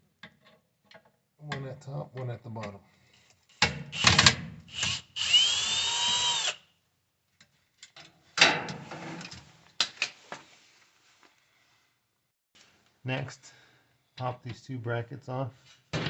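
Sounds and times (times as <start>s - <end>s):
power drill whine: 4.0s - 6.6s.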